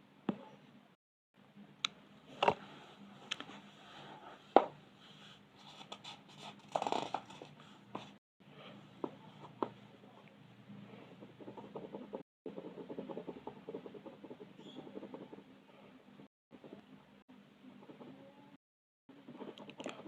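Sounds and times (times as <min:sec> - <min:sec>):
pencil scratching on paper: 0:10.9 - 0:15.9, 0:19.1 - 0:20.0.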